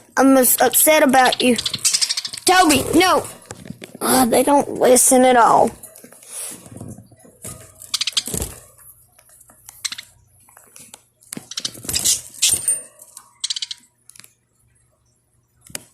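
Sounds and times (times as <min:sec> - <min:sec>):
parakeets clattering in cage: 0:11.4 - 0:13.8.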